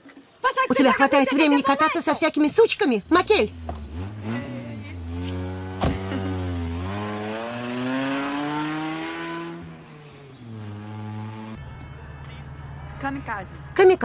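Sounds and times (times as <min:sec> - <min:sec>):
car engine accelerating: 0:03.0 - 0:11.7.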